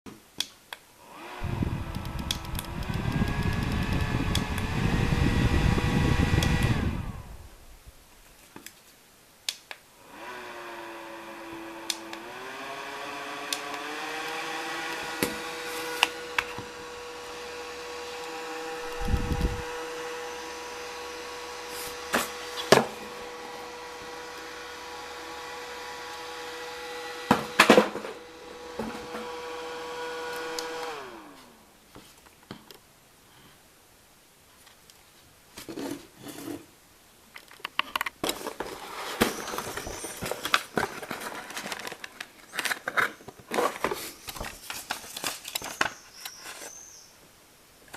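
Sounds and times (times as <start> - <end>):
fan motor whining: 1.1 - 7.8, 10.0 - 31.6
clicks: 1.8 - 4.7.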